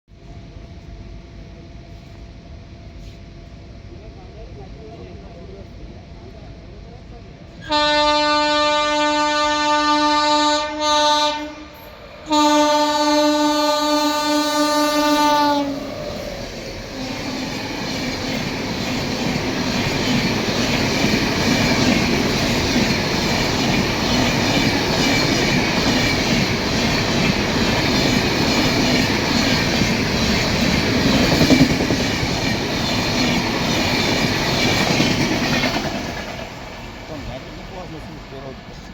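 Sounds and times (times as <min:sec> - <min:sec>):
train passing at speed: 0:00.1 - 0:38.9
train horn blasts: 0:07.6 - 0:15.9
wheels clattering on rails: 0:15.8 - 0:38.8.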